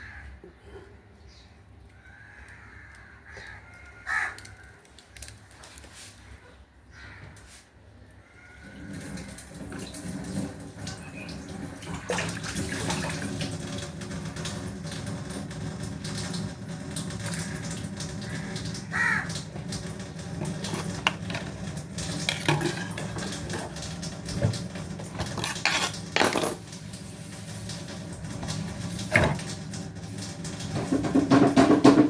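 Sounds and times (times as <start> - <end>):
dishes and utensils clattering: 19.6 - 26.8, 27.8 - 32.0.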